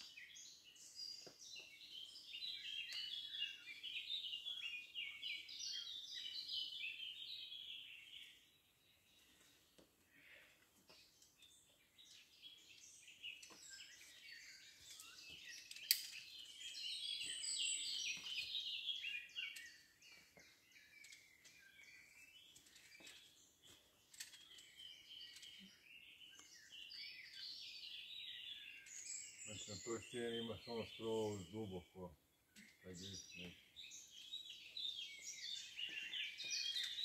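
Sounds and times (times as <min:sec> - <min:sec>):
birds singing and chirping: 0:00.0 - 0:37.0.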